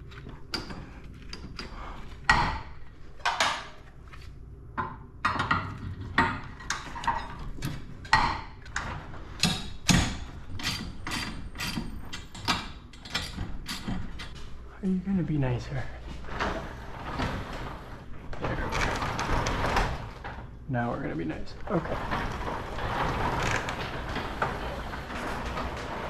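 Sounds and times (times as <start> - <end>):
garage door knocking and clacking: 2.2 - 3.8, 4.8 - 14.4, 16.3 - 20.6, 21.6 - 26.0.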